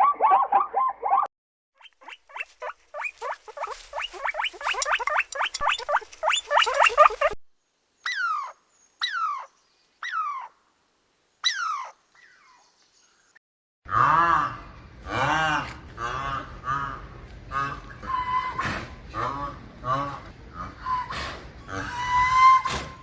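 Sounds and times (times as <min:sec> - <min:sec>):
high-pitched animal calls: 0:01.8 - 0:07.4, 0:08.1 - 0:10.5, 0:11.4 - 0:12.6.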